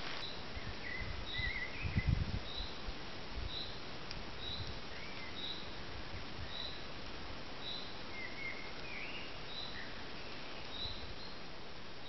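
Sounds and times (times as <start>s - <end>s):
steady background hiss: 0.0s - 12.0s
bird high chirp: 0.2s - 2.8s
lower bird chirps: 0.2s - 2.8s, 3.4s - 3.8s, 4.4s - 5.8s, 6.4s - 6.8s, 7.6s - 11.4s.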